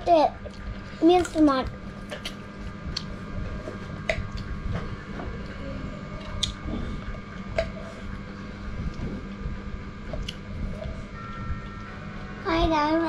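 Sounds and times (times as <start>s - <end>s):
steady low hum: 0.0s - 13.0s
person chewing: 10.1s - 10.9s.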